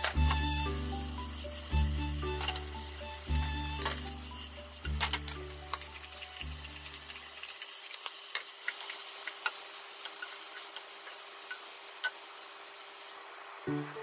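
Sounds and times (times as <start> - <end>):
vegetables sizzling in oil: 0.0 - 14.0
chopsticks clicking in pan: 4.8 - 12.2.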